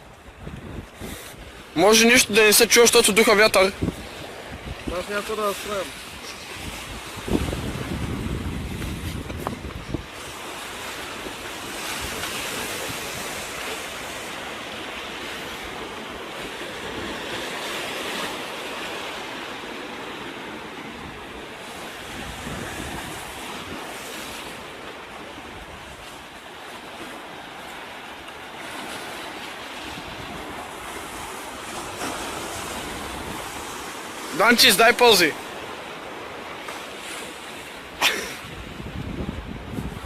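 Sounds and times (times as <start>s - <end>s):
wind buffeting microphone: 0.0s - 1.7s, 3.7s - 14.6s, 19.0s - 24.4s, 29.7s - 33.9s, 38.4s - 40.0s
sea waves washing on shore: 0.0s - 40.0s.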